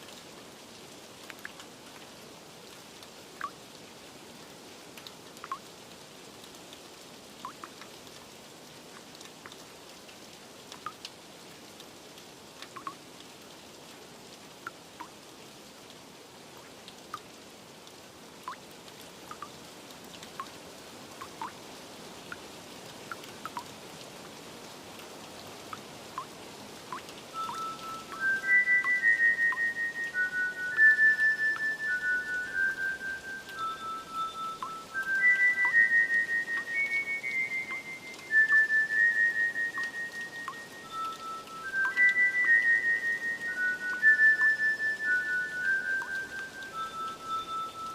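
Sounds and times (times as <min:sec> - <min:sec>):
rain hiss: 0:00.0 - 0:47.9
water drips plinking: 0:01.2 - 0:02.1, 0:03.4 - 0:03.6, 0:05.0 - 0:05.7, 0:07.4 - 0:08.3, 0:08.9 - 0:09.7, 0:10.7 - 0:11.2, 0:12.2 - 0:13.0, 0:14.6 - 0:15.2, 0:16.5 - 0:21.7, 0:22.3 - 0:24.4, 0:25.0 - 0:47.9
chime notes: 0:27.4 - 0:30.7, 0:31.9 - 0:35.6, 0:45.1 - 0:47.9.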